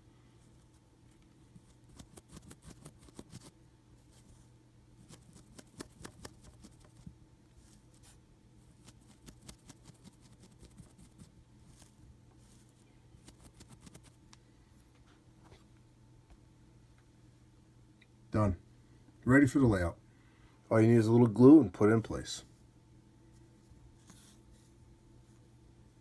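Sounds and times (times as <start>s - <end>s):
paintbrush scratching on plaster: 1.6s - 3.5s, 5.0s - 14.2s.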